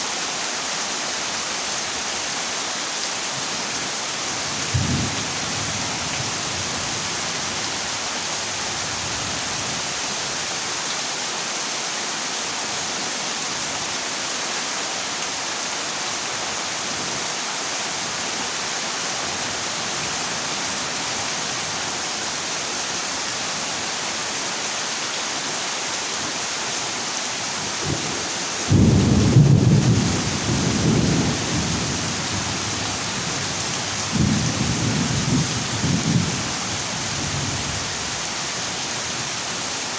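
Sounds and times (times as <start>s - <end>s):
heavy rain on a metal roof: 0.0s - 39.9s
thunder rumble: 28.7s - 32.6s.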